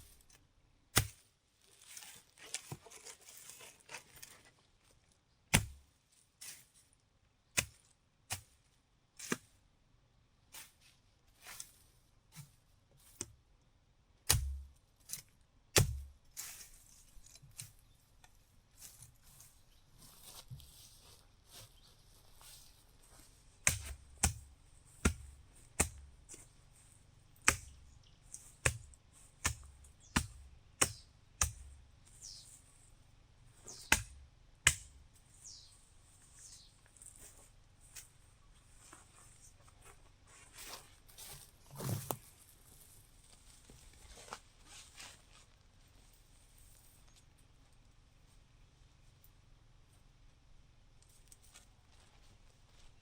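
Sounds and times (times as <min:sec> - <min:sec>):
sharp knocks with dull thuds: 0:23.6 - 0:26.4, 0:28.6 - 0:31.8.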